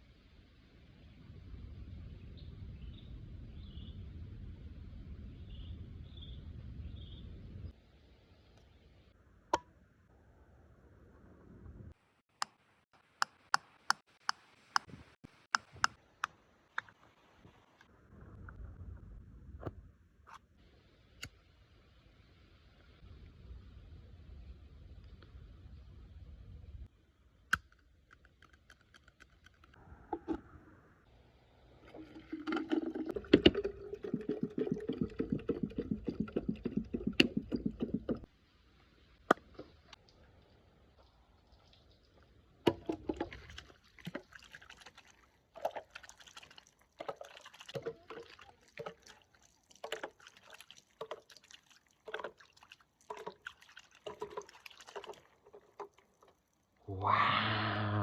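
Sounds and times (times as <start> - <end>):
water pouring with glugging: 31.8 - 38.3, 41.5 - 56.8.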